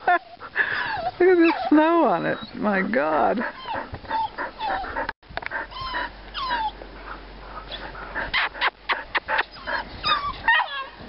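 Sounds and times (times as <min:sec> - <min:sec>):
dogs whining: 0:00.0 - 0:06.8, 0:07.6 - 0:11.0.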